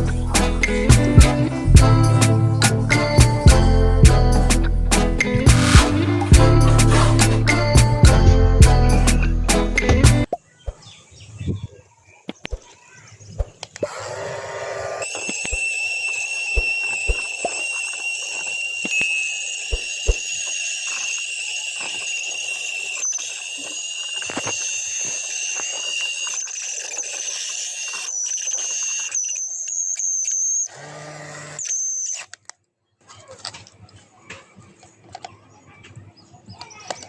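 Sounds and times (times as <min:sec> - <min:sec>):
vacuum cleaner motor whine: 0:13.9 - 0:32.2.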